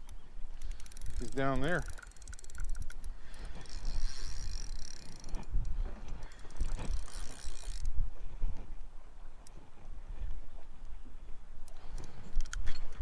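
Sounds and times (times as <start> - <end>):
fishing reel ratcheting: 0.0 - 8.0, 11.7 - 13.0.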